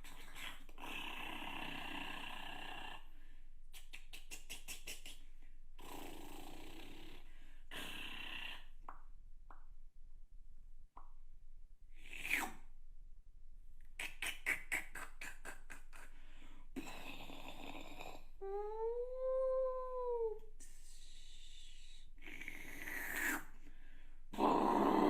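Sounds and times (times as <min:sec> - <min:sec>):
person making vocal sound effects: 0:03.7 - 0:06.1, 0:14.0 - 0:23.6
rapid mouth clicks: 0:03.7 - 0:06.1, 0:13.8 - 0:16.3
vocal hissing: 0:12.0 - 0:12.7, 0:14.0 - 0:16.1, 0:20.0 - 0:23.6.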